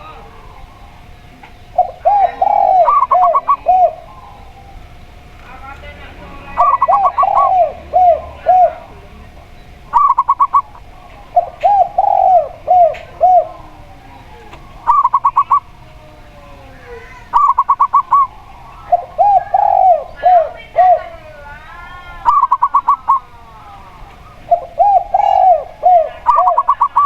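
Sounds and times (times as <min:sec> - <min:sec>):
low arched dove coos: 0:00.0 - 0:05.3, 0:06.2 - 0:27.0
short high dove coos: 0:01.8 - 0:04.6, 0:06.6 - 0:08.9, 0:09.9 - 0:21.1.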